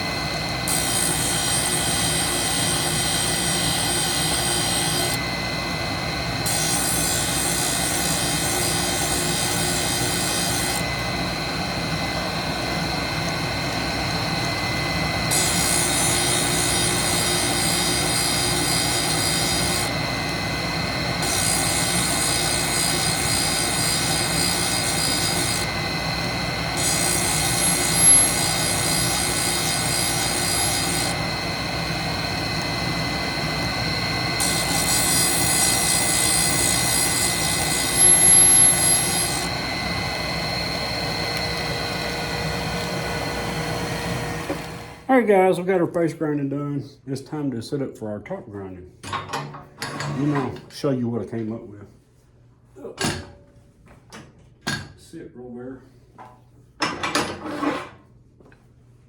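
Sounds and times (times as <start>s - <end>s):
sharpening grinder whine: 0.0s - 45.1s
high grinding hiss: 0.6s - 5.2s, 6.4s - 10.8s, 15.3s - 20.0s, 21.2s - 45.1s.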